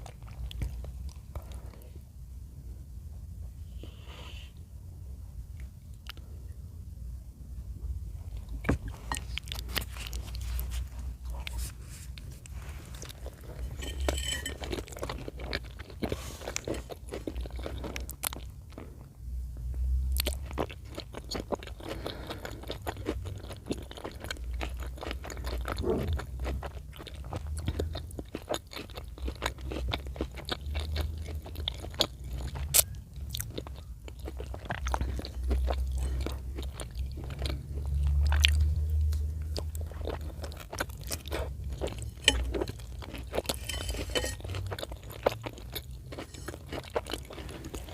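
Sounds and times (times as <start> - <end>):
close chewing with wet mouth clicks: 14.6 - 19.1, 20.1 - 47.9.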